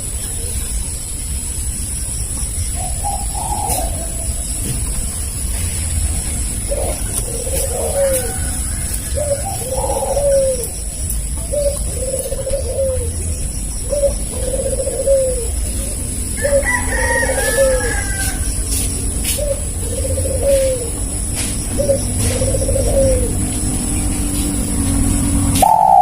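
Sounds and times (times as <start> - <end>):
dove cooing: 2.5 - 26.0
rooster crowing: 7.1 - 10.6, 16.3 - 18.9.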